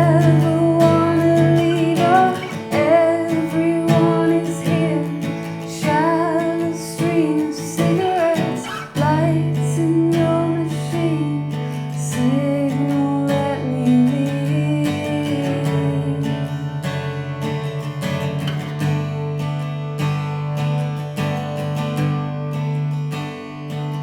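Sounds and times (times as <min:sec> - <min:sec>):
person singing: 0:00.0 - 0:16.5
strummed acoustic guitar: 0:00.0 - 0:24.0.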